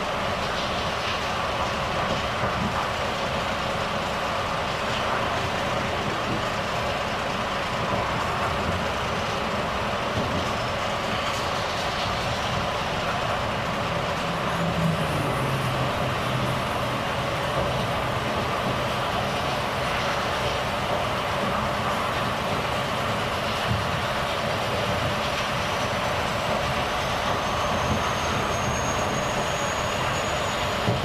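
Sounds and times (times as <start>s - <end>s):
road and tyre noise: 0.0s - 31.0s
truck diesel engine running: 10.6s - 28.3s.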